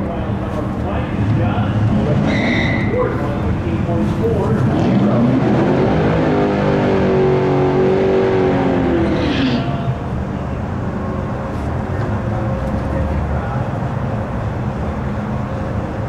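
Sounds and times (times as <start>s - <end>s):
car engine revving: 1.0s - 10.8s.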